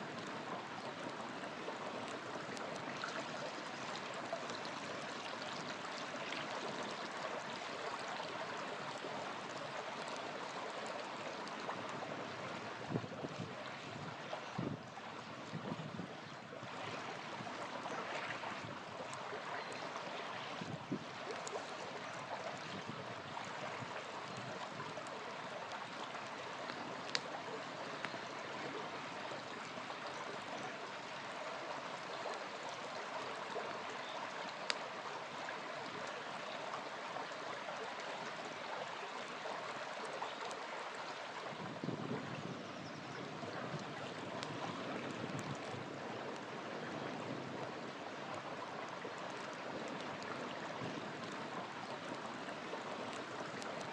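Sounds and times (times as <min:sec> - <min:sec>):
campfire crackling: 0:00.0 - 0:42.6, 0:43.4 - 0:53.9
river flowing: 0:00.0 - 0:53.9.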